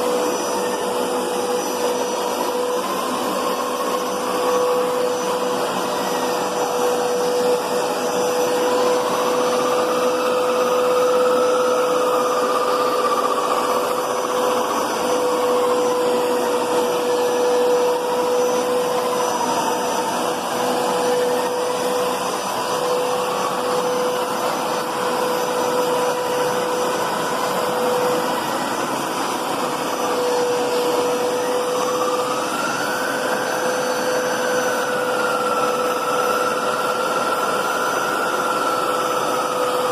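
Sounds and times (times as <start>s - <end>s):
carpet cleaner motor whine: 0.0s - 39.9s.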